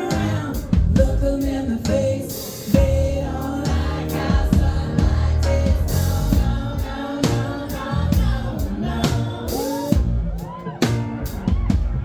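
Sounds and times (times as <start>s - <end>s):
woman singing: 0.0s - 10.2s
drum kit: 0.0s - 12.0s.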